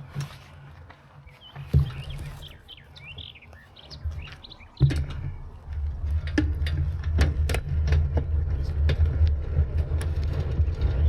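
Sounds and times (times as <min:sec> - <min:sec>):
small birds chirping: 0:00.0 - 0:05.9
low rumble: 0:05.0 - 0:11.0.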